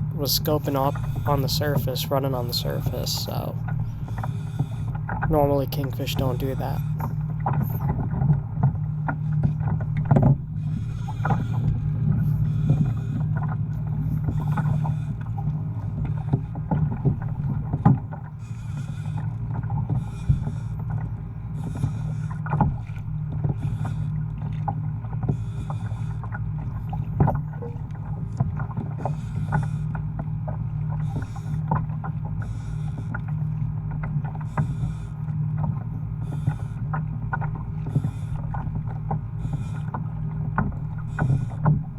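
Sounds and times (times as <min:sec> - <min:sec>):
water rushing along hull: 0:00.0 - 0:41.9
clicks and knocks from hull: 0:07.1 - 0:10.5, 0:35.6 - 0:41.9.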